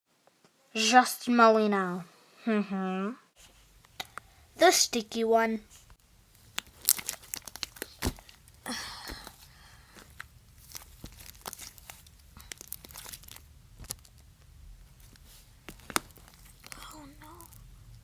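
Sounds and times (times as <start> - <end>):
slime stretching with crackles and pops: 3.4 - 18.0
slime tearing: 6.3 - 14.2, 14.8 - 17.9.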